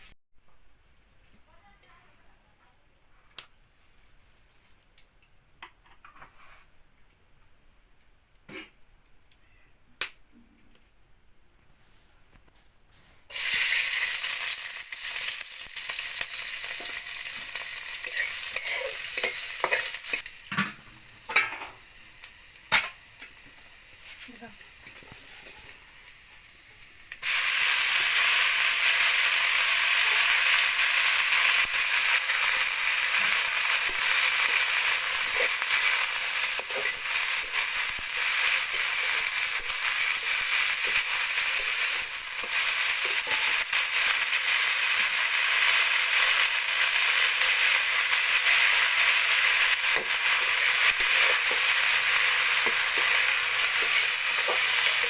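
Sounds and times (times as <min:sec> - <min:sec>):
food sizzling in hot oil: 0:13.3 - 0:55.0.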